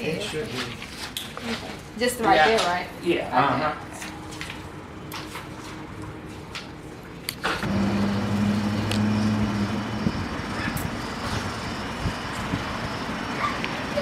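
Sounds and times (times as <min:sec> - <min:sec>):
vehicle hum: 0:07.4 - 0:14.0.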